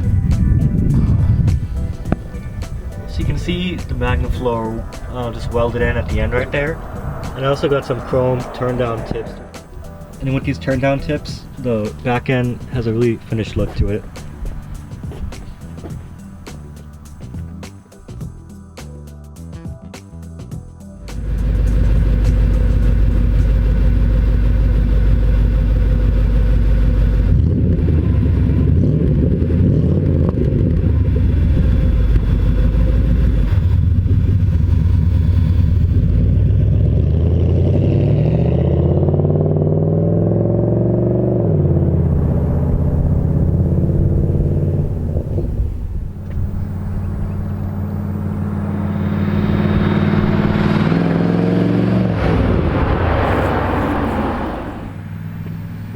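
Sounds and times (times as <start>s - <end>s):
car engine revving and idling: 0.0s - 19.4s, 20.8s - 55.9s.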